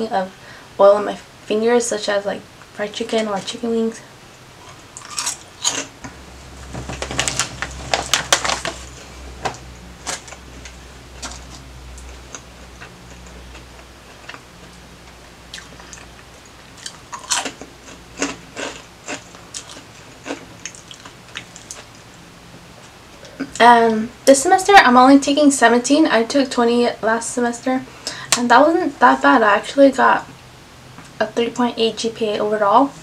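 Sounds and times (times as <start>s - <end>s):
crunchy snack chewing: 4.6s - 6.0s, 15.5s - 21.9s.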